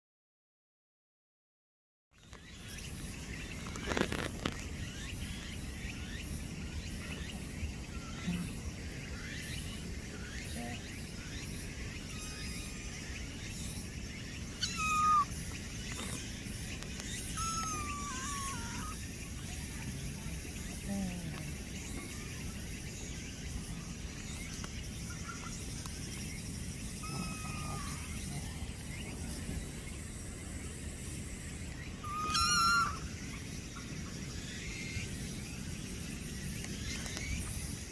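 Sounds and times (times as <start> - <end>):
outdoor background noise: 2.1 - 37.9
insects calling in pulses: 2.2 - 37.9
short high animal call: 17.4 - 19.0, 32.0 - 33.0.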